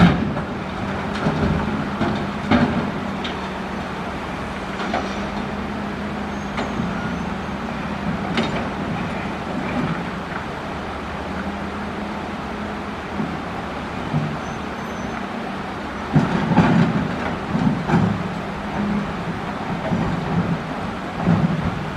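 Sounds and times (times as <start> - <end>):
excavator diesel engine running: 0.0 - 21.9.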